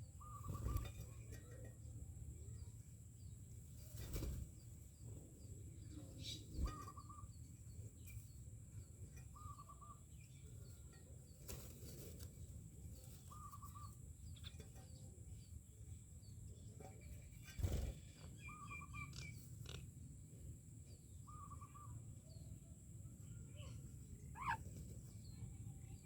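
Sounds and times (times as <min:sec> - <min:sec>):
myna bird wavering call: 0:21.3 - 0:22.0, 0:23.2 - 0:24.7.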